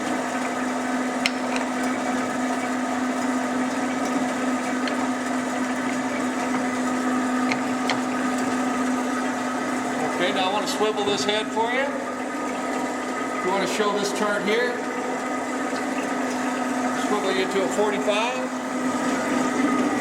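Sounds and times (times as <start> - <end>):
band saw humming: 0.0 - 20.0.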